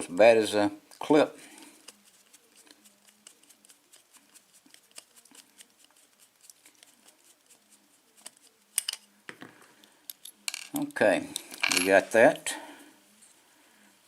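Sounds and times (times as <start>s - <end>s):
tool clicking and scraping in lock: 10.1s - 12.0s.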